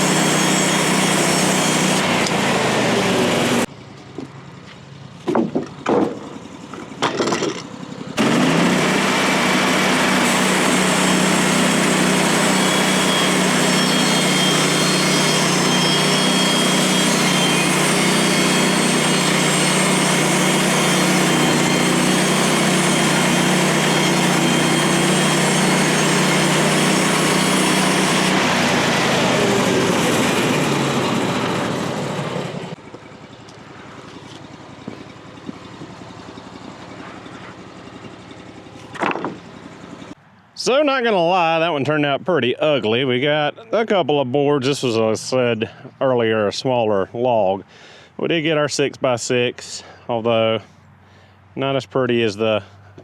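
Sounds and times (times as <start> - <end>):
small gasoline engine running: 0.0 - 4.7, 5.8 - 40.2.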